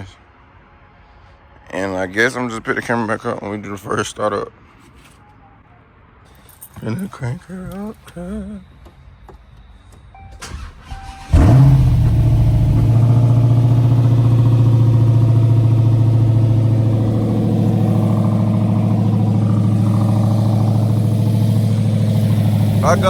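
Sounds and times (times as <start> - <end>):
car engine starting and idling: 10.2 - 23.0.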